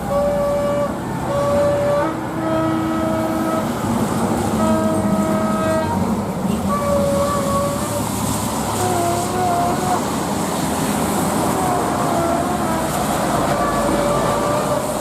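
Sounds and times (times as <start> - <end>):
jet engines roaring: 0.9 - 15.0
wavering whining tones: 11.4 - 15.0.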